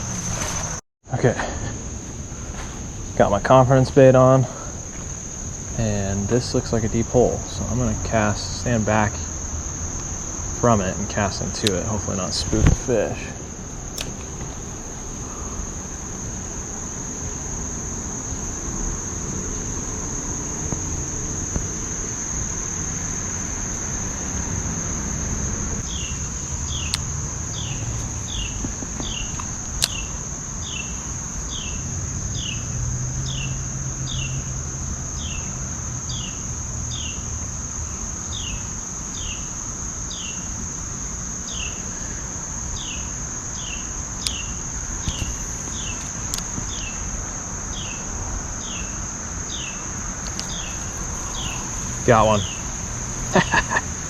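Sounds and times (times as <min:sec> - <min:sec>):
insects trilling: 0:00.0 - 0:54.0
sharp clicks: 0:13.9 - 0:14.6, 0:50.2 - 0:52.0
bird chirping: 0:49.5 - 0:53.9.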